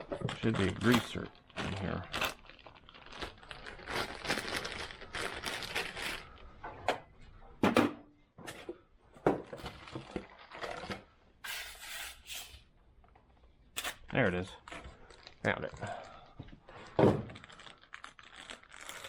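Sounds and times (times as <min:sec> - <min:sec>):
rustling and crinkling: 0:00.0 - 0:06.5, 0:09.4 - 0:11.1, 0:14.1 - 0:19.0.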